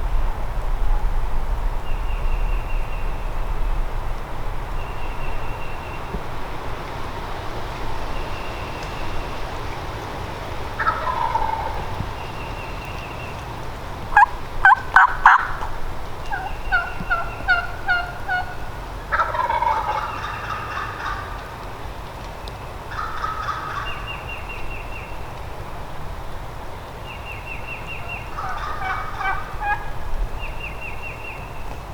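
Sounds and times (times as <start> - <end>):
turkey gobbling: 10.7 - 13.5, 14.1 - 21.6, 22.9 - 24.2, 27.9 - 30.1
sharp turkey calls: 10.7 - 21.7, 22.9 - 24.6, 27.5 - 30.9
turkey yelps: 10.8 - 12.0, 14.2 - 21.5, 22.9 - 24.0, 28.0 - 30.0.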